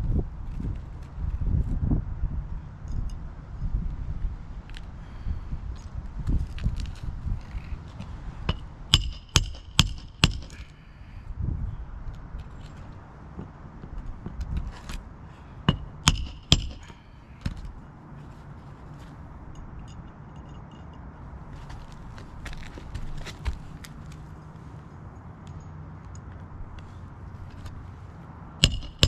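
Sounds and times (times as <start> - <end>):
hammer driving nails: 8.5 - 10.7, 15.7 - 17.6, 28.6 - 29.0.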